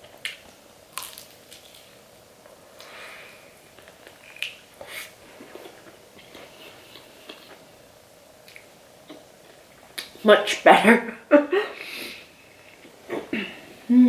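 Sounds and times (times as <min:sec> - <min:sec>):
chewing crispy chicken: 0:00.2 - 0:02.0.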